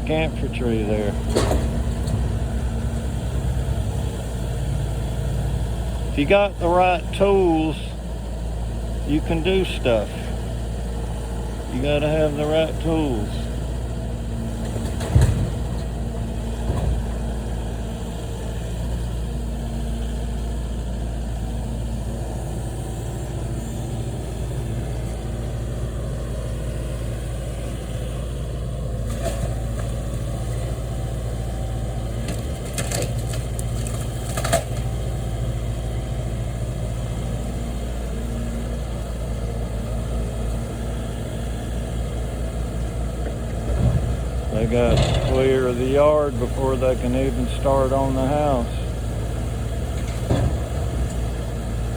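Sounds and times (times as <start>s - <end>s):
heavy machinery engine idling: 0.0s - 51.9s
debris knocking and clanking: 43.6s - 45.9s.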